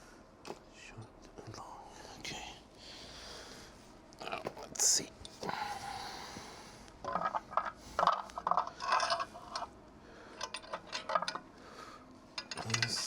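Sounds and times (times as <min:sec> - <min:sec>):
metal bolts clinking: 0:07.1 - 0:09.7, 0:10.4 - 0:11.5, 0:12.4 - 0:13.0.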